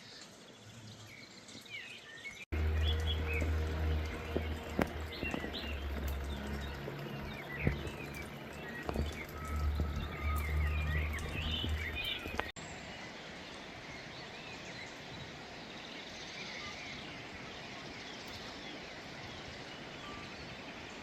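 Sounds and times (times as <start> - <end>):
outdoor noise: 0.0 - 21.0
small birds chirping: 0.0 - 21.0
loud low rumble: 2.5 - 12.5.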